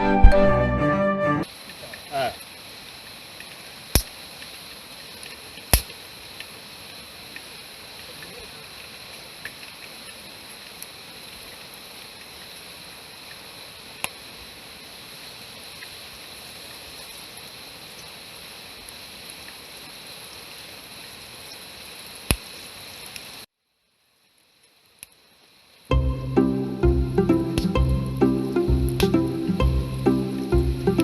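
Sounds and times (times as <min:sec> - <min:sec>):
stream water rushing: 0:26.2 - 0:31.0.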